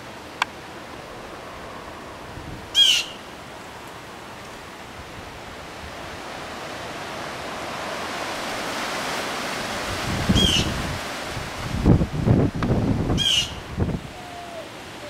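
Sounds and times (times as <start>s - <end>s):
high bird call: 2.7s - 3.3s, 10.3s - 10.8s, 13.2s - 13.6s
rain falling on vegetation: 3.0s - 15.0s.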